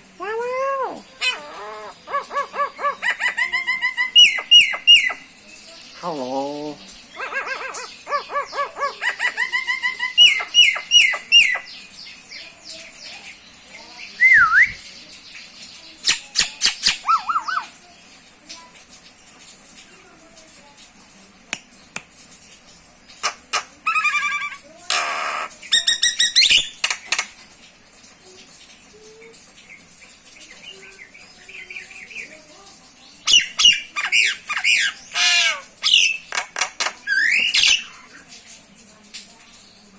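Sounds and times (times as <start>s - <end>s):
myna squawking and chattering: 0.0s - 5.4s, 6.0s - 11.7s, 16.0s - 17.8s, 23.2s - 27.3s, 33.2s - 38.2s.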